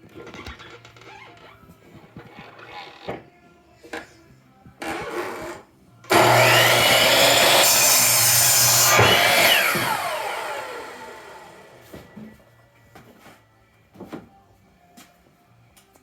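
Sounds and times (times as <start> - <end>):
saw motor winding down: 6.1 - 11.9
electric saw cutting wood: 6.1 - 12.2.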